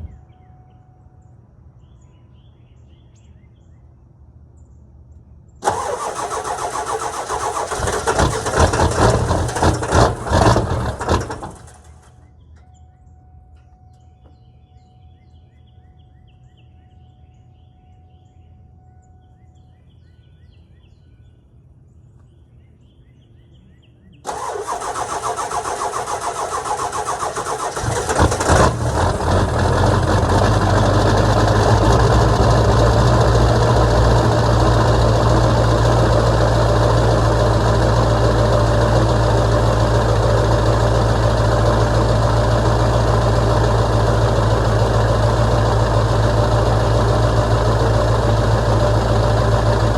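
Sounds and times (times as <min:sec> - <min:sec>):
diesel engine idling: 0:05.6 - 0:12.0, 0:24.3 - 0:49.9
starter motor cranking: 0:05.6 - 0:12.0, 0:24.3 - 0:49.9.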